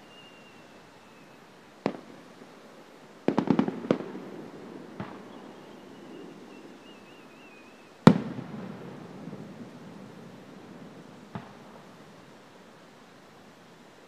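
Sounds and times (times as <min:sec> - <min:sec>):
faint firework whistle: 0:00.0 - 0:02.1, 0:05.0 - 0:09.8
fireworks bangs echoing: 0:01.8 - 0:02.6, 0:03.2 - 0:07.1, 0:08.0 - 0:12.2.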